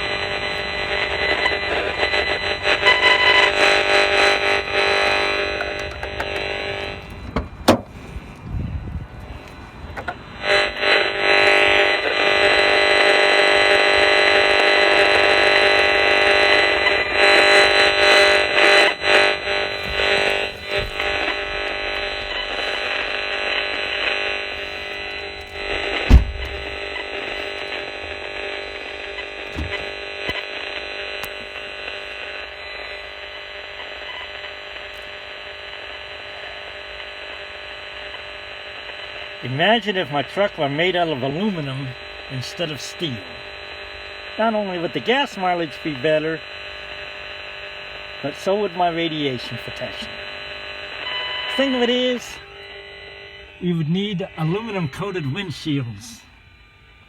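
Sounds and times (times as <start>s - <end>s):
radio meter static buzzing: 0.0s - 57.0s
sharp knock: 26.1s - 26.7s.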